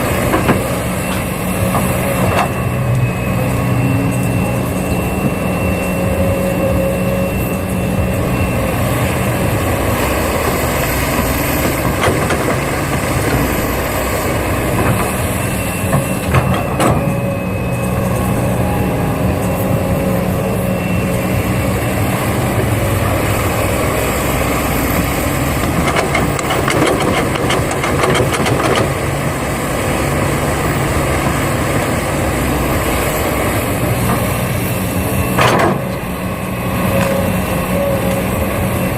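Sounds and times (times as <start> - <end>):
high whine: 0.0 - 38.9
model excavator hum: 0.0 - 38.9
rattling clicks: 25.7 - 29.0.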